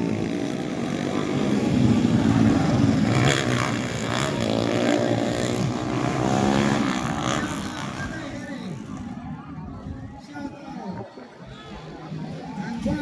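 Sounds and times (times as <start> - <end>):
dirt bike engines revving: 0.0 - 9.8.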